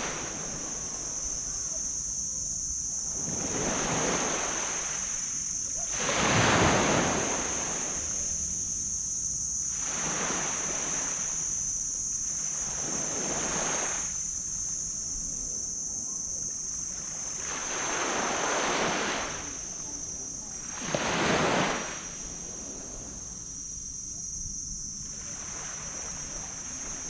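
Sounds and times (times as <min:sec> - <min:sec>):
small waves breaking on beach: 0:00.0 - 0:01.9, 0:02.9 - 0:08.6, 0:09.7 - 0:11.6, 0:12.3 - 0:14.3, 0:16.8 - 0:23.6, 0:25.0 - 0:27.0
steady high-pitched hiss: 0:00.0 - 0:27.0.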